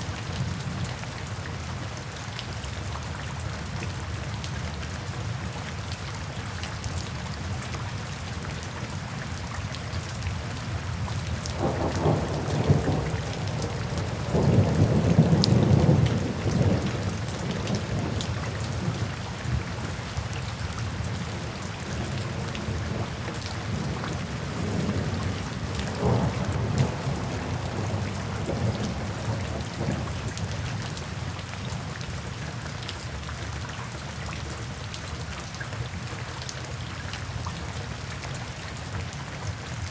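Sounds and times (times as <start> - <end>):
steady rain: 0.0 - 39.9
thunder rumbling: 11.6 - 18.2, 23.7 - 30.4.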